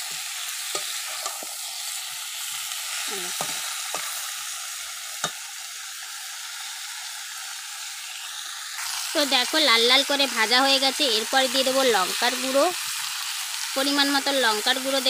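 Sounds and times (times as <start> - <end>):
spatula scraping and knocking pan: 0.0 - 1.6, 3.3 - 4.2
vegetables sizzling in oil: 0.0 - 15.0.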